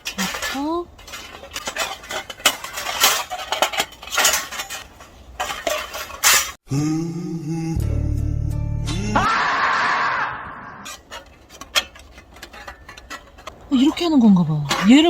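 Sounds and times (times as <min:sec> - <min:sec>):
metal parts clinking and clattering: 0:00.0 - 0:06.6, 0:10.9 - 0:15.0
background music: 0:07.4 - 0:09.3.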